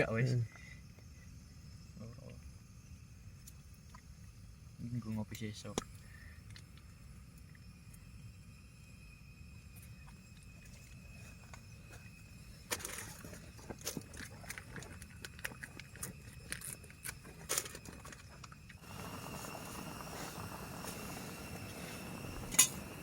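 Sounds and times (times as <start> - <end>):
steady hiss: 0.0 - 23.0
steady low rumble: 18.8 - 23.0.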